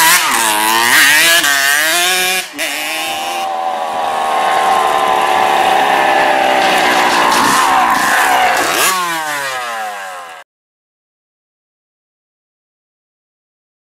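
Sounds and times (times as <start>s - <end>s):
two-stroke engine revving: 0.0s - 10.4s.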